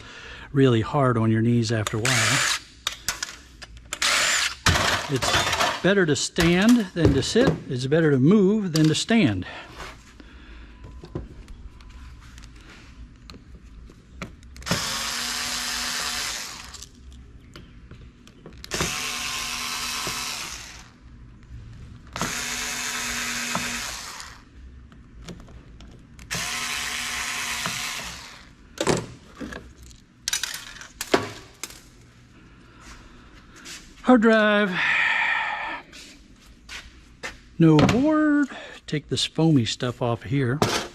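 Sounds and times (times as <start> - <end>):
parts clicking and knocking: 2.8 - 7.7, 27.4 - 32.1
cordless power driver running: 4.0 - 5.6, 14.6 - 16.9, 18.6 - 21.0, 22.1 - 24.5, 26.2 - 28.6.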